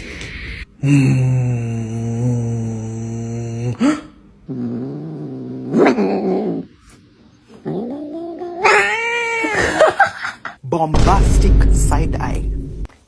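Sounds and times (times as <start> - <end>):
cat yowling and growling: 4.5 - 6.7, 7.6 - 10.0.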